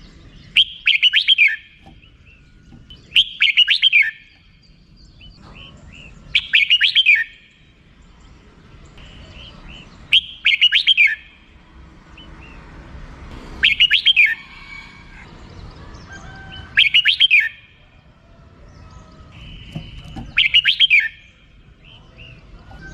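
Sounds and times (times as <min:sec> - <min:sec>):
bulbul chattering call: 0:00.3 - 0:07.7, 0:09.0 - 0:11.5, 0:13.3 - 0:15.3, 0:15.9 - 0:18.0, 0:18.7 - 0:22.9.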